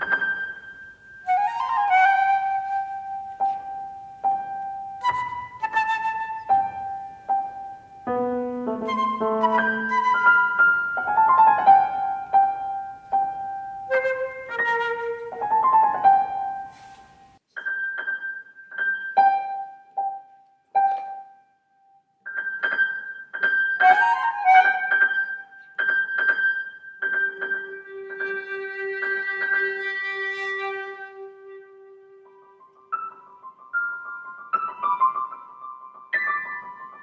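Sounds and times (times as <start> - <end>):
flute: 0.0 - 17.3, 23.7 - 25.7
piano notes and chords: 0.0 - 37.0.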